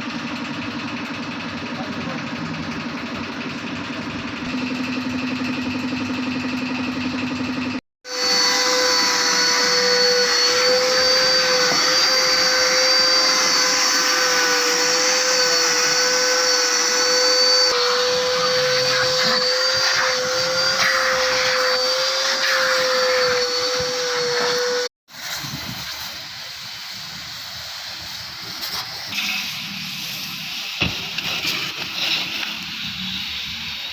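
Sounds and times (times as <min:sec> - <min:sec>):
vacuum cleaner motor whine: 0:00.4 - 0:25.4.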